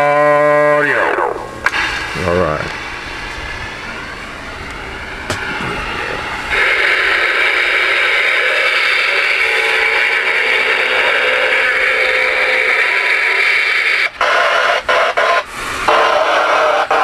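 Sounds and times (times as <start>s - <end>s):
radio static and hiss: 0.0s - 4.4s, 5.3s - 17.0s.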